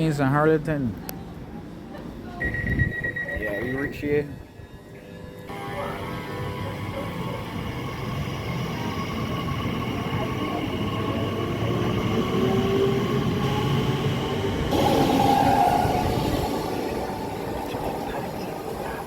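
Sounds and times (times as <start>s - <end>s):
train rumbling on track: 4.2s - 19.0s.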